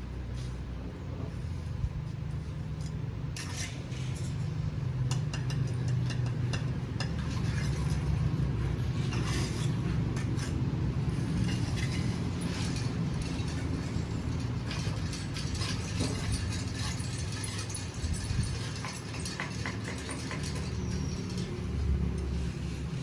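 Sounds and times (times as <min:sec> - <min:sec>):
vehicle rumble: 0:00.0 - 0:23.0
loose parts rattling and clicking: 0:11.1 - 0:23.0.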